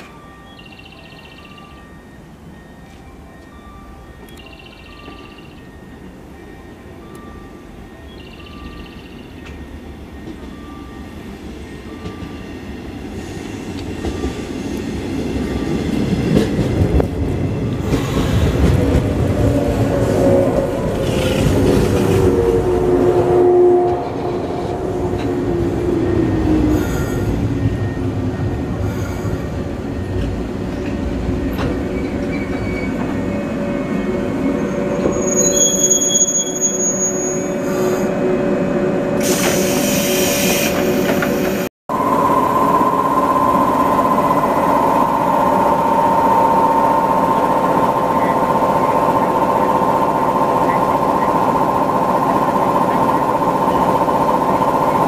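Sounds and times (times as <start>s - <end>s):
electric train braking to a stop: 17.7s - 24.2s, 25.0s - 55.0s
high brake squeal: 31.9s - 33.1s, 34.2s - 38.1s, 39.2s - 41.1s.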